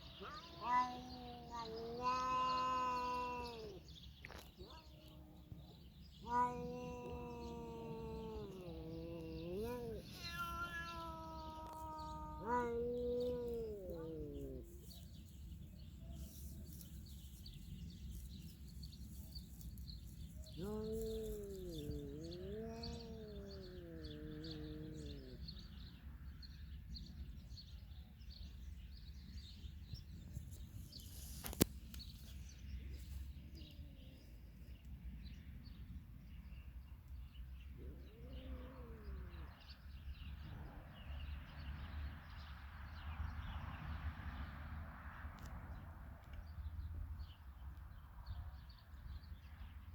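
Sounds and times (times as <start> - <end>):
cat meowing: 0.1 - 3.8, 6.2 - 14.8, 20.6 - 25.4, 37.8 - 39.5.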